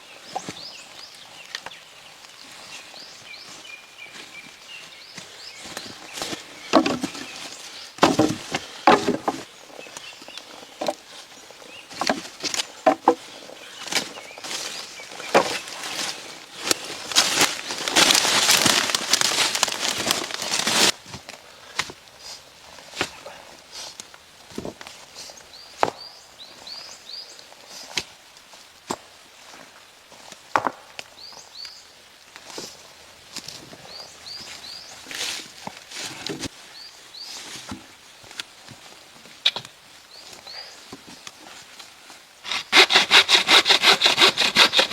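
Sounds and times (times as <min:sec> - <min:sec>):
rustling in dry leaves: 0:00.0 - 0:30.5, 0:31.2 - 0:44.9
wood knocking: 0:06.7 - 0:07.3, 0:08.0 - 0:09.5, 0:12.0 - 0:13.2.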